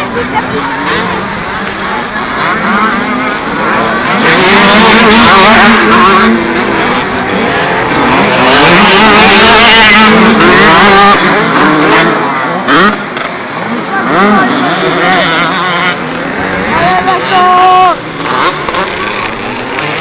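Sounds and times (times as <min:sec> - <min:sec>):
motocross bikes racing: 0:00.0 - 0:20.0.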